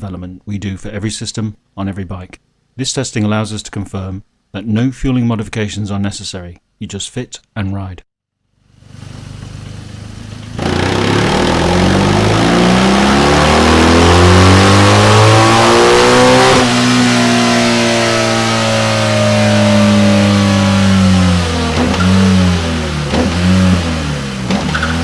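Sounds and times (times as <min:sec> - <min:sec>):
motorcycle engine revving: 0:08.9 - 0:25.0.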